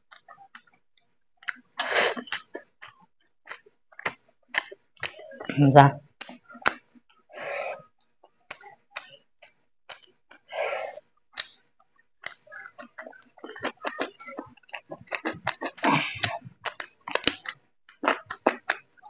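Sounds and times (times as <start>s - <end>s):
wet chewing clicks and lip smacks: 1.4s - 5.4s, 11.2s - 19.0s.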